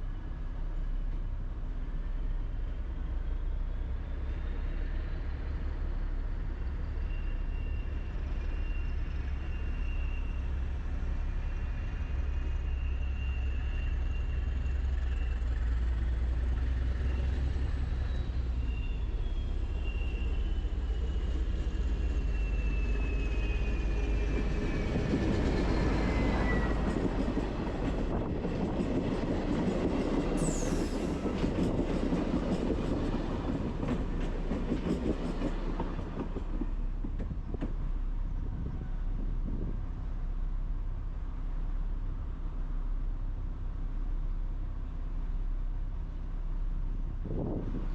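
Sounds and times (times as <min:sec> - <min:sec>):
train rumbling on tracks: 0:00.0 - 0:47.9
high falling squeal: 0:17.0 - 0:28.8, 0:30.2 - 0:33.8.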